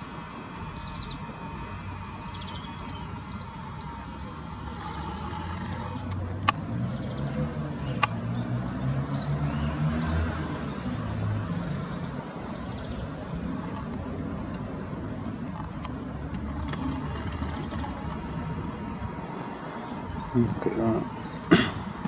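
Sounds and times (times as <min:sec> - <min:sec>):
low engine rumble: 0:00.0 - 0:22.0
sharp clicks: 0:00.8 - 0:06.7, 0:13.7 - 0:22.0.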